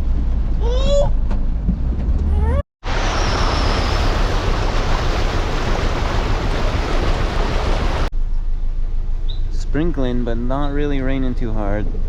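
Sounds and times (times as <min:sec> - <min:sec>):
floodwater rushing: 0:02.8 - 0:08.1.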